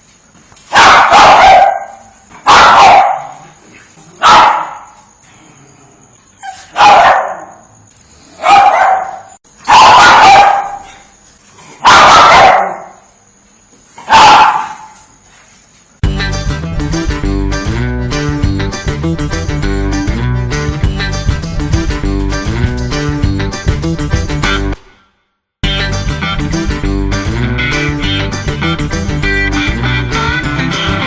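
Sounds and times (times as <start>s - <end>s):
dog barking: 0.7s - 3.6s, 4.2s - 5.0s, 6.4s - 7.6s, 8.4s - 11.1s, 11.8s - 13.0s, 14.0s - 15.0s.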